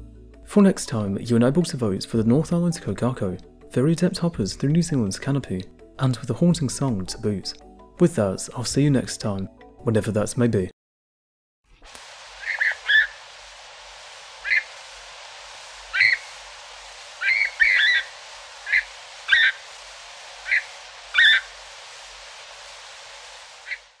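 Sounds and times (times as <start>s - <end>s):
field recording hiss: 11.7s - 24.0s
short sharp bird calls: 12.4s - 13.2s, 14.4s - 14.7s, 15.9s - 16.4s, 17.2s - 19.7s, 20.4s - 21.6s, 23.6s - 24.0s.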